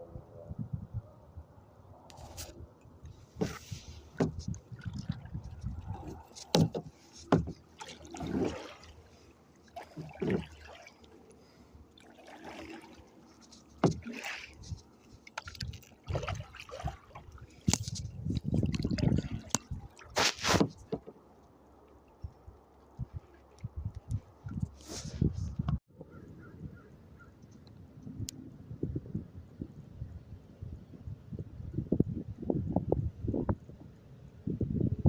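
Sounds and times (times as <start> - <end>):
paddle splashing in water: 3.2 - 21.2.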